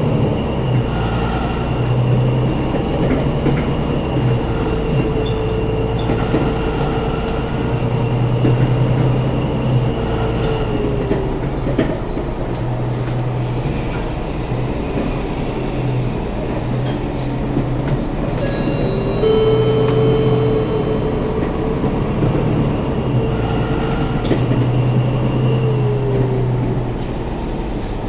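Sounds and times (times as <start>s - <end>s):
bus rumble and drive whine: 0.0s - 28.0s
repeating electronic tone: 18.4s - 24.0s.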